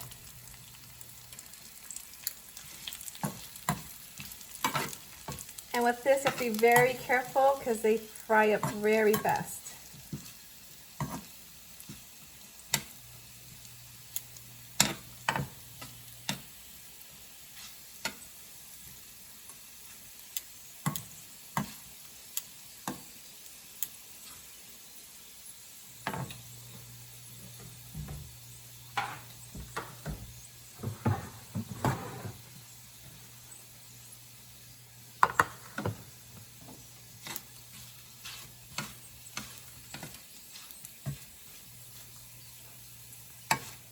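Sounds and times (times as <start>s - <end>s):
bread frying in oil: 0.0s - 43.9s.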